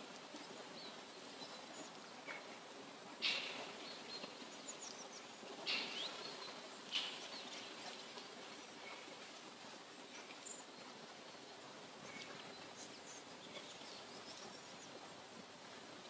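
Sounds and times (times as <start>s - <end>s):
steady background hiss: 0.0s - 16.0s
harsh bird calls: 3.2s - 7.6s.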